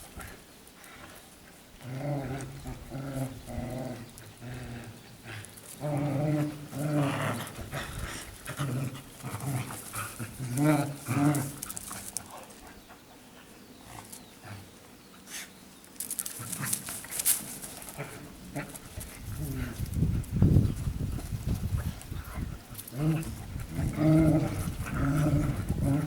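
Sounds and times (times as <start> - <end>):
dogs growling in play: 0.2 - 15.4, 16.2 - 26.0
clicks and scratchy noises: 9.4 - 12.6, 15.9 - 26.0.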